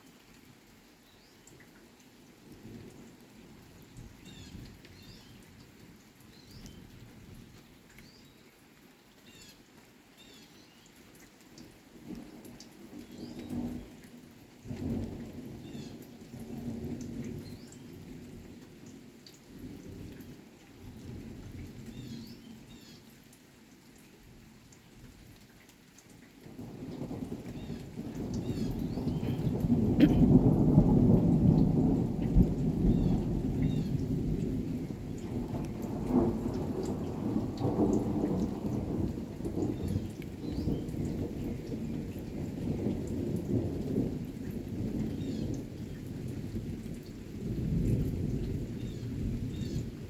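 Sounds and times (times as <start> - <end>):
steady rain: 0.0 - 50.0
thunder rumbling: 12.0 - 17.7, 26.4 - 50.0
birds chirping: 28.4 - 30.2.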